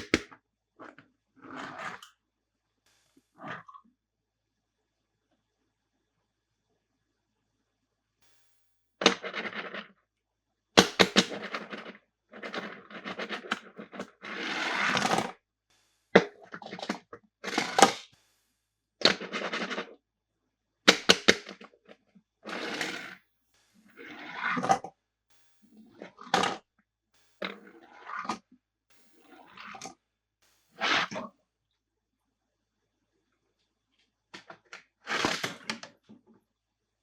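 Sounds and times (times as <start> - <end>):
plastic toy clacks: 0.0 - 0.4, 10.8 - 18.4, 19.0 - 19.9, 20.9 - 21.6.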